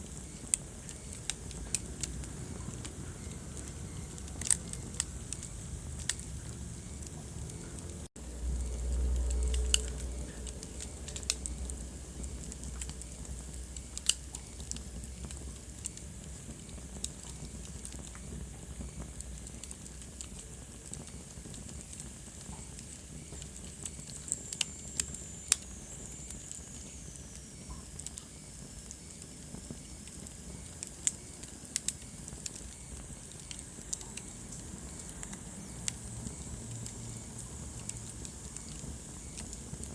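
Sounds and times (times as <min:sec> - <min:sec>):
steady hiss: 0:00.0 - 0:39.9
wood fire crackling and popping: 0:00.0 - 0:39.9
low rumble: 0:01.3 - 0:14.0.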